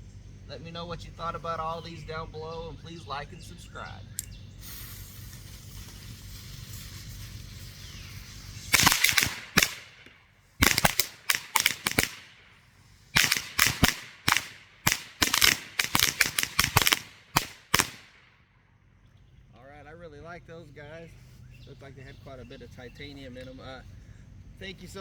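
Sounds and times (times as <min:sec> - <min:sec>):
faint steady hiss: 0:00.0 - 0:25.0
firecrackers banging: 0:04.6 - 0:18.2.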